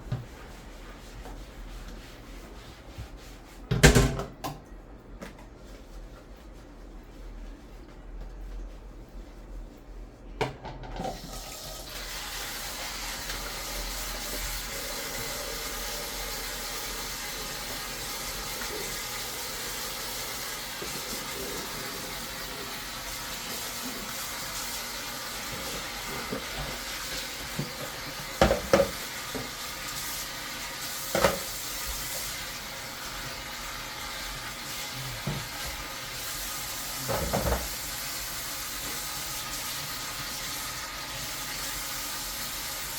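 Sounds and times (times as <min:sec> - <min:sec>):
water running from sink tap: 0:10.9 - 0:42.9.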